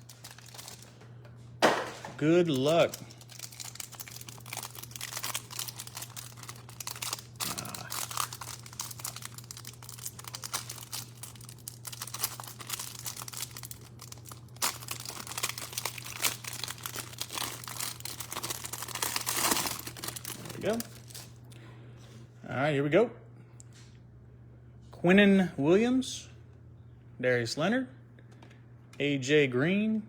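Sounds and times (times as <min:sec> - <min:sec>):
packaging crinkling and tearing: 0:00.0 - 0:01.0, 0:01.6 - 0:21.4
steady low hum: 0:00.0 - 0:30.0.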